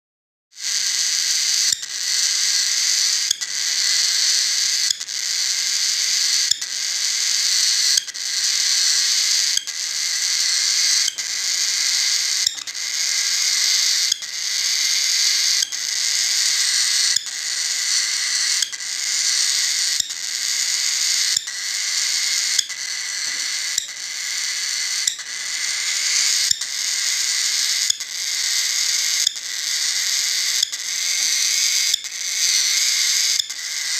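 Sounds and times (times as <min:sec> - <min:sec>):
cockatiel raspy hissing call: 0:00.6 - 0:33.9.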